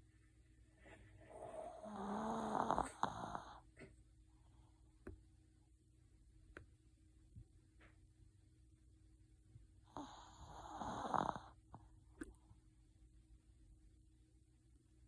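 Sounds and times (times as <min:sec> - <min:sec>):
dog snoring: 0:01.2 - 0:03.7, 0:09.9 - 0:11.6.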